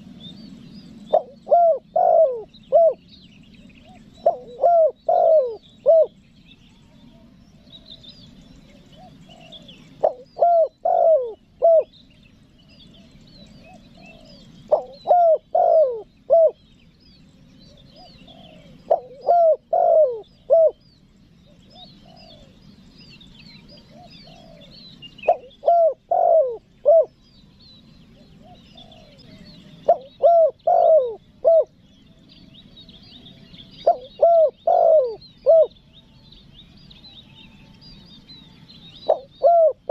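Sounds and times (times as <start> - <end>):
small birds chirping faintly: 0.0 - 39.9
dove cooing: 0.9 - 6.2, 6.9 - 12.0, 12.8 - 16.7, 17.6 - 20.8, 21.5 - 27.2, 28.1 - 31.8, 32.9 - 36.2, 38.9 - 39.9.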